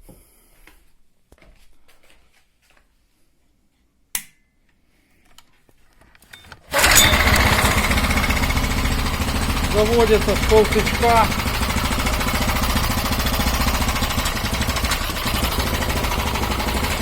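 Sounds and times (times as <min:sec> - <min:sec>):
pull starter: 0:06.3 - 0:17.0
lawnmower engine running: 0:06.7 - 0:17.0.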